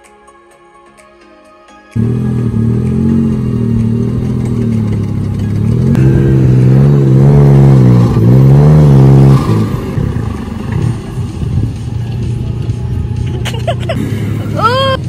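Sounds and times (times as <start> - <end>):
engine revving under heavy load: 2.0 - 15.0
faint music: 9.7 - 15.0.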